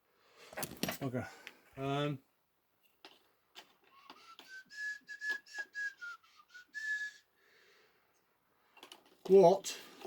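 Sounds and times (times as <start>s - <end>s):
person whistling a tune: 3.9s - 7.4s.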